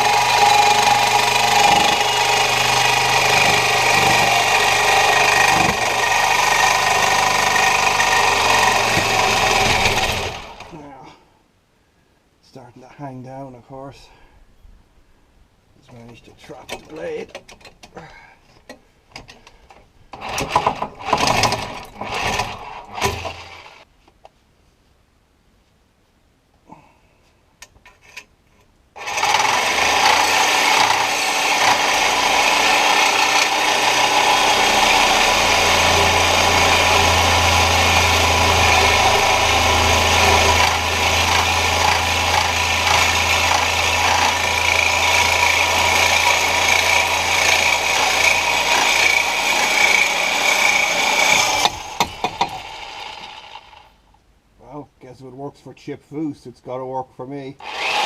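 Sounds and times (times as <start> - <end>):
reciprocating saw cutting: 0.0 - 10.8, 29.0 - 54.0, 57.6 - 58.0.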